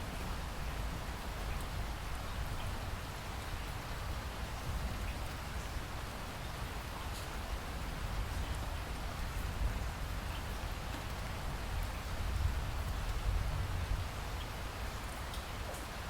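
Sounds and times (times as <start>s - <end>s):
rain falling: 0.0s - 16.0s
faint raindrop ticks: 7.0s - 13.6s, 14.3s - 16.0s.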